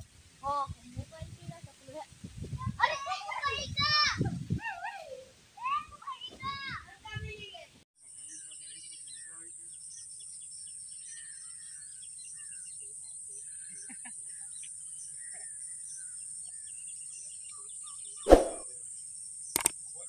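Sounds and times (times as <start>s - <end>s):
loud thump: 18.3s - 18.6s.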